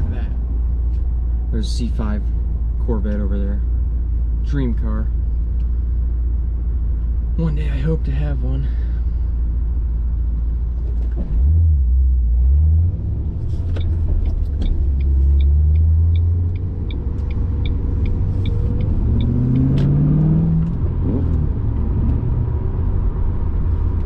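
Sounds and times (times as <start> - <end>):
road rumble: 0.0 - 24.0
car engine running: 13.0 - 24.0.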